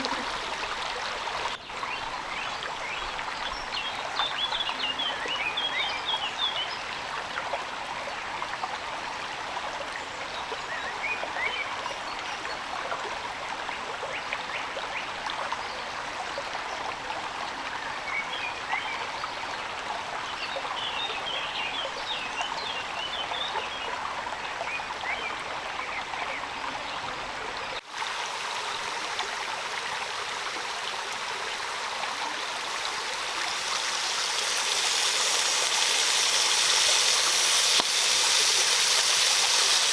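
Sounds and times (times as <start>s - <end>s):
small birds twittering: 0.0s - 1.6s, 28.0s - 39.9s
rushing water: 0.0s - 12.5s, 24.2s - 39.9s
high hiss: 27.8s - 39.9s.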